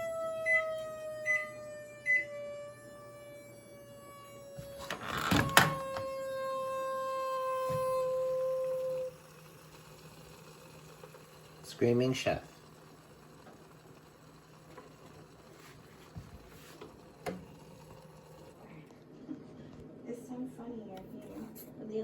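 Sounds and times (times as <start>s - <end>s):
high steam whistle: 5.6s - 10.0s.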